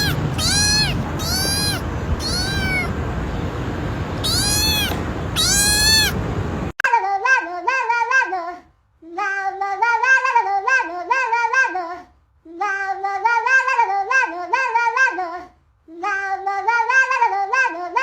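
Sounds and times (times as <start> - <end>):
high voice singing: 0.0 - 2.9.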